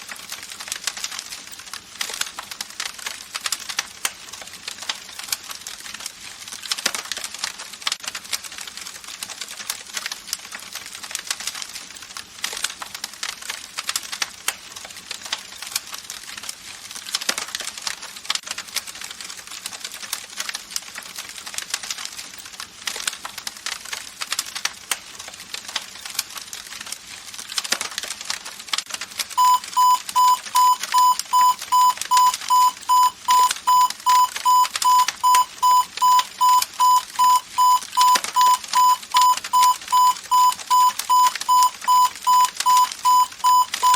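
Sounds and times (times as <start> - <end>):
alarm beeping: 29.4 - 43.9.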